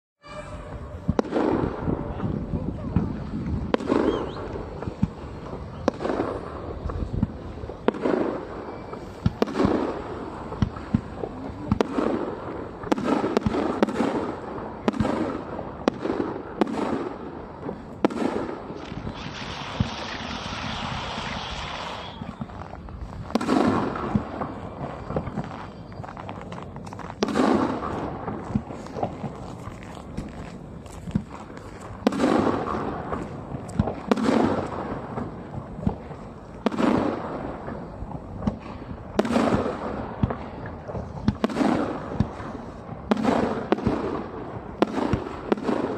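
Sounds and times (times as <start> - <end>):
fireworks crackling hiss: 0.2 - 45.9
firework shells bursting: 17.7 - 30.4.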